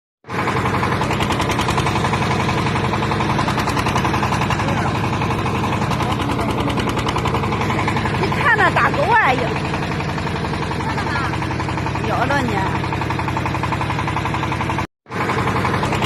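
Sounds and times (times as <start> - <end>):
diesel engine running: 0.2 - 16.0.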